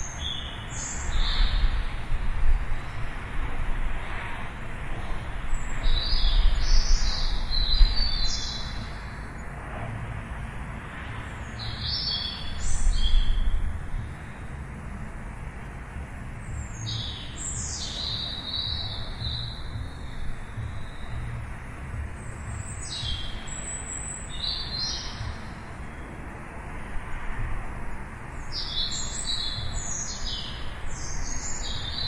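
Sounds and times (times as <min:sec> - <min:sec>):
steady low rumble: 0:01.0 - 0:28.6
songbird chirping: 0:05.5 - 0:09.5, 0:11.2 - 0:14.4, 0:16.3 - 0:26.3, 0:28.3 - 0:32.0.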